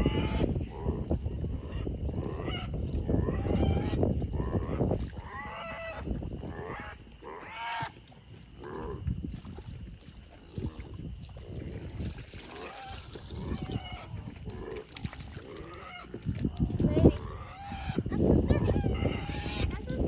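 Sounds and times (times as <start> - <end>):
farm animals calling: 0.0 - 9.0, 12.4 - 20.0.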